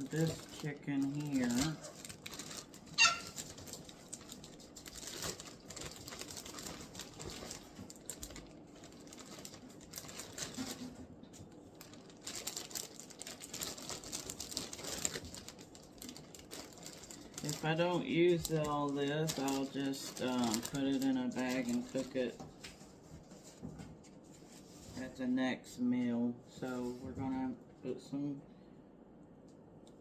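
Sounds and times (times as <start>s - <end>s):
plastic packaging crinkling: 0.0s - 22.8s.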